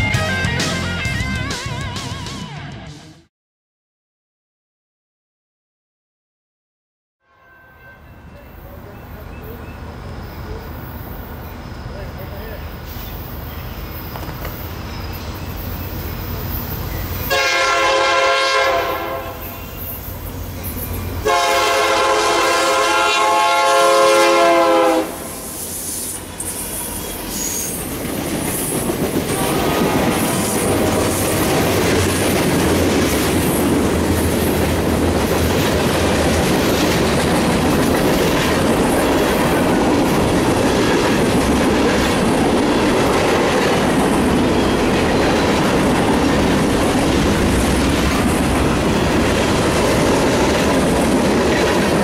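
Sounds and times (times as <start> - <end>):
locomotive air horn blasts: 7.2 - 8.2, 17.3 - 20.0, 21.2 - 25.5, 29.3 - 31.4
train wheel clatter on rails: 14.0 - 14.8, 27.2 - 52.0.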